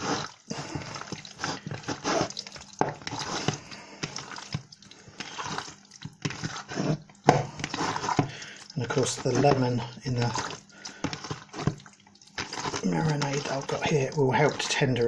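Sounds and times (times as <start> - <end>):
wet squelches of mixing meat: 0.0 - 15.0.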